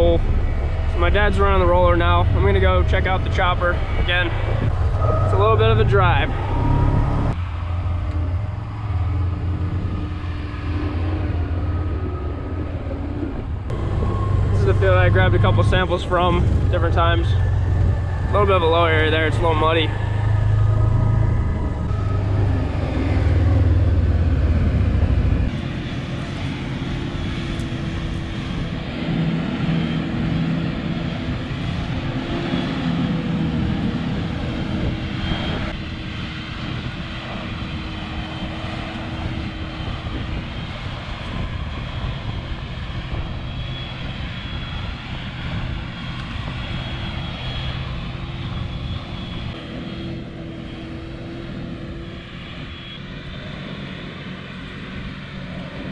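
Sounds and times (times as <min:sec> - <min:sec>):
deep low rumble: 0:00.0 - 0:52.6
heavy engine drone: 0:00.0 - 0:55.9.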